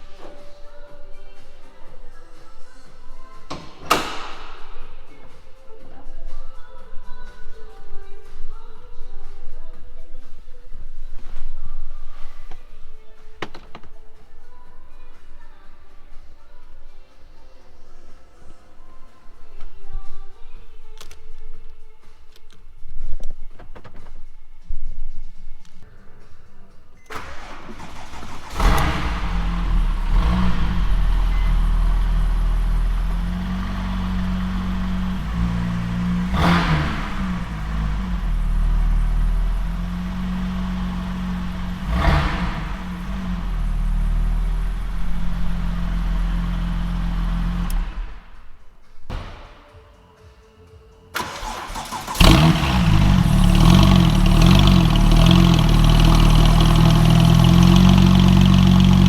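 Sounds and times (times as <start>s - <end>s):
car engine revving: 27.1s - 48.5s, 51.2s - 59.0s.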